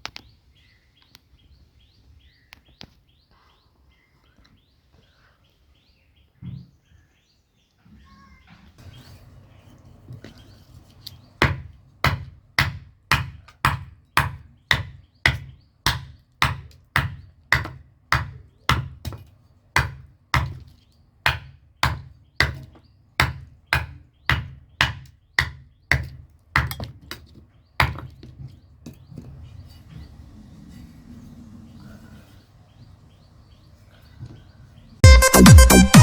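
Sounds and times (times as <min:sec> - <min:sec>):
cleaver chopping: 0:11.4 - 0:20.7.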